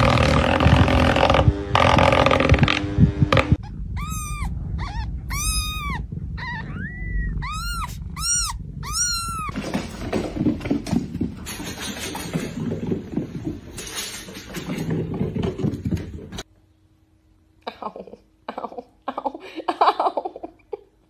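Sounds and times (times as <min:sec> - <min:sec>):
kitten mewing: 0:03.6 - 0:09.5.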